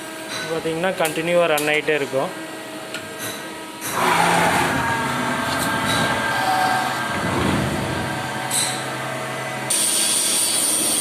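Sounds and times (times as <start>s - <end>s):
lathe machining noise: 3.8s - 11.0s.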